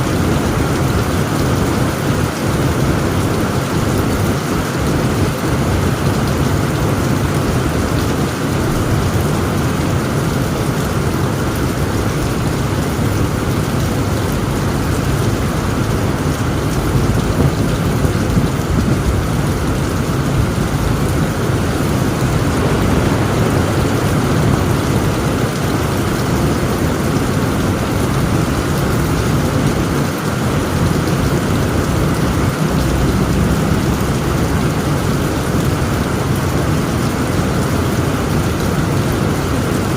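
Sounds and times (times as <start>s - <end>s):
rain on a tent roof: 0.0s - 39.9s
low rumble of thunder: 4.3s - 39.1s.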